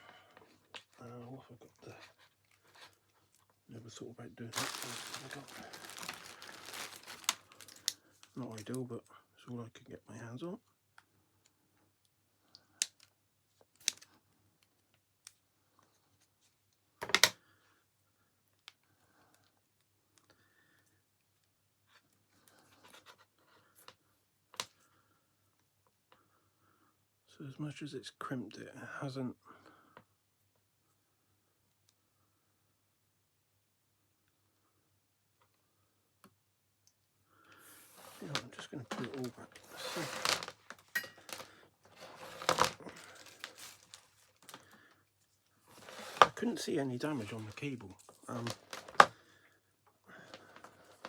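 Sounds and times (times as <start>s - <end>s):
wires and plastic parts clicking: 4.5s - 8.8s, 12.5s - 15.4s, 38.2s - 44.8s, 45.7s - 49.2s.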